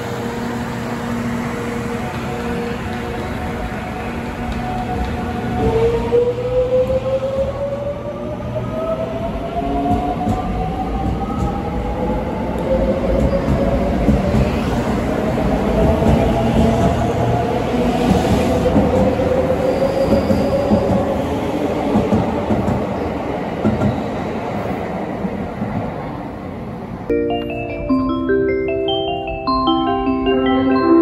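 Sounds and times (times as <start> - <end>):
train wheel noise: 0.0 - 27.1
mallet-like melody: 27.1 - 31.0.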